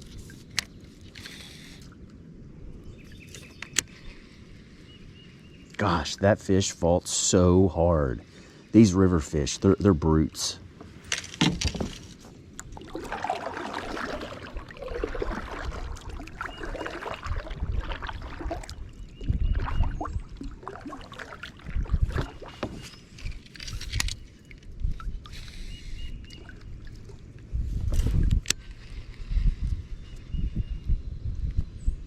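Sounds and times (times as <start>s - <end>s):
water splashing and dripping: 11.4s - 25.6s, 26.2s - 28.5s.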